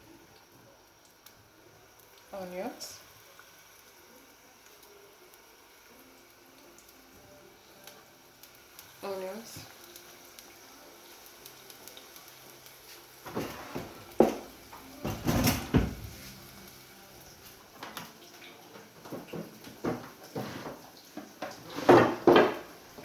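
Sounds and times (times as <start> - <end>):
pots and utensils clattering: 13.2 - 16.4, 17.8 - 23.0.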